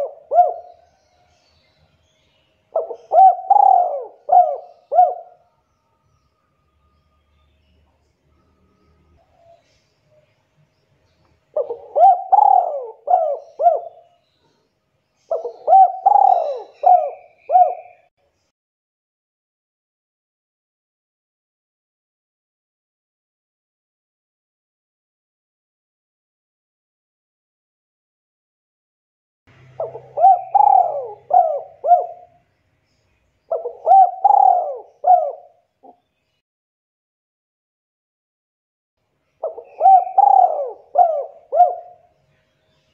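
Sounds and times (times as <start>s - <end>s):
dove cooing: 0.0s - 1.0s, 2.7s - 5.4s, 11.5s - 14.2s, 15.2s - 18.1s, 29.8s - 32.4s, 33.5s - 36.0s, 39.4s - 42.1s.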